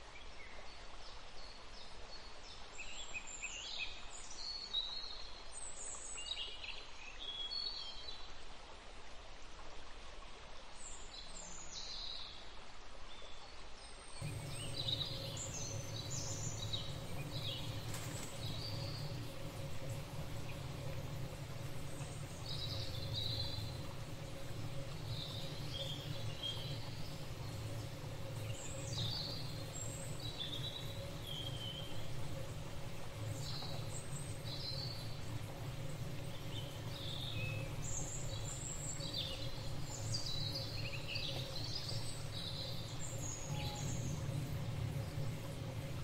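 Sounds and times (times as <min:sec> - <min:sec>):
faint steady hiss: 0:00.0 - 0:46.0
birds chirping: 0:14.2 - 0:46.0
low hum: 0:14.2 - 0:46.0.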